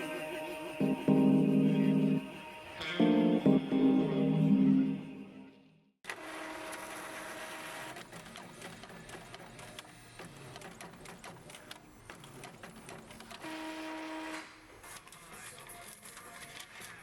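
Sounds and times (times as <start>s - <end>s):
printer clicks and rattling: 7.9s - 13.4s.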